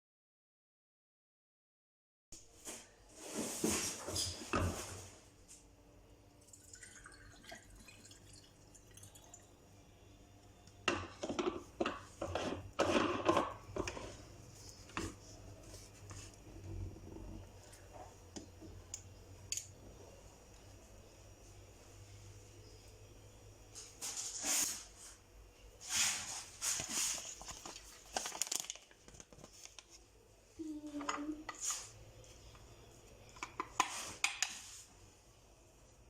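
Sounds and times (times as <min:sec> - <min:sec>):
faint low hum: 0:02.4 - 0:28.4
kitchen things clinking and knocking: 0:10.8 - 0:14.1.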